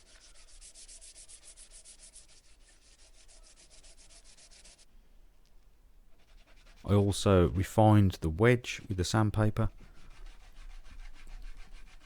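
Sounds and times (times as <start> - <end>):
sandpaper rubbing on wood: 0.0 - 4.8, 10.0 - 12.0.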